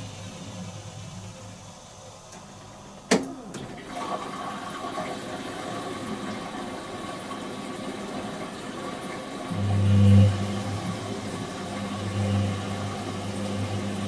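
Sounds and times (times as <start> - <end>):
washing machine running: 0.0 - 14.0
water noise: 3.1 - 14.0
loud low mains hum: 9.4 - 14.0.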